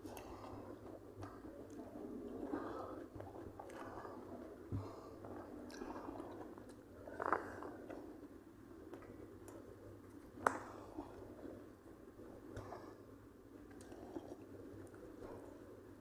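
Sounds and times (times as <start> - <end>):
person chewing food: 0.0 - 8.3.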